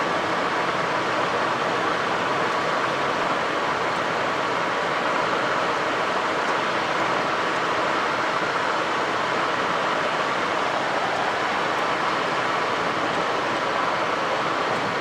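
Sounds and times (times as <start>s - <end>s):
jet cockpit airflow and engine noise: 0.0s - 15.0s.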